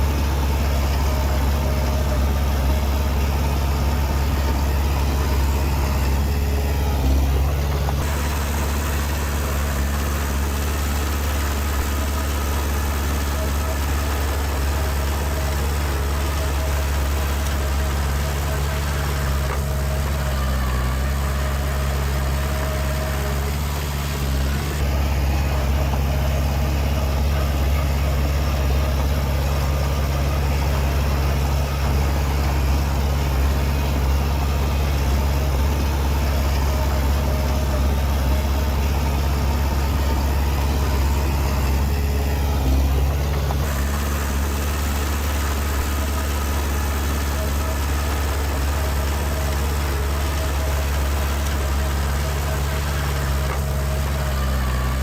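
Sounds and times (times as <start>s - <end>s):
diesel engine running at low revs: 0.0s - 55.0s.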